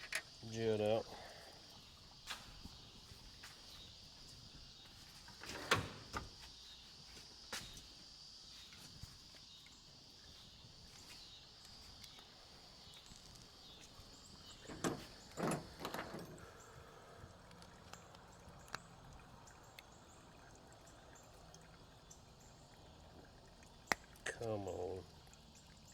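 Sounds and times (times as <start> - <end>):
insect chirr: 0.0 - 25.9
hand tools clicking and knocking: 14.6 - 16.4.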